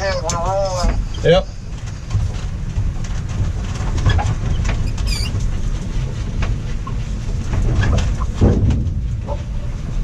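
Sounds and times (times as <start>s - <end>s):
truck drivetrain low rumble: 0.0s - 10.0s
rattles and clicks: 0.1s - 10.0s
brief squeak: 4.8s - 5.4s.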